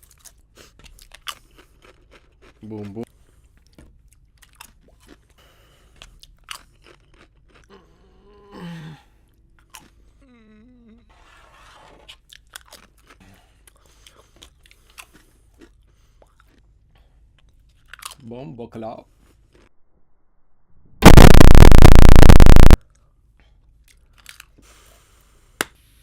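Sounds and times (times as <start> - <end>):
crunching and clicking chewing: 0.0 - 7.9, 9.3 - 10.0, 12.1 - 18.3, 23.8 - 24.6.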